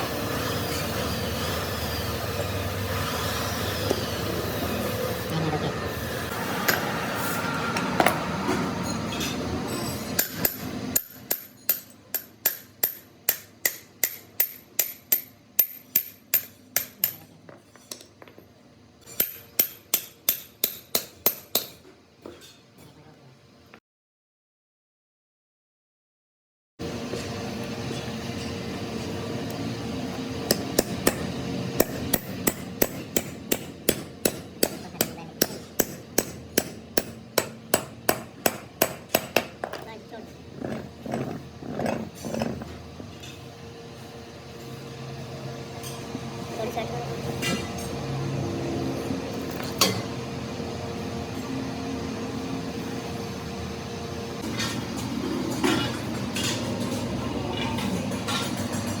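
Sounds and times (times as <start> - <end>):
hammer striking metal: 9.8 - 17.3, 19.1 - 21.8, 30.5 - 39.8.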